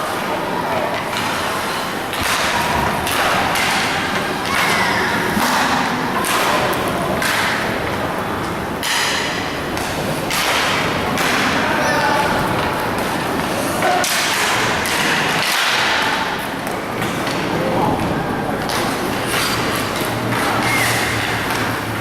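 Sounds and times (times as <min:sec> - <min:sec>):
noisy rumble: 0:16.2 - 0:22.0.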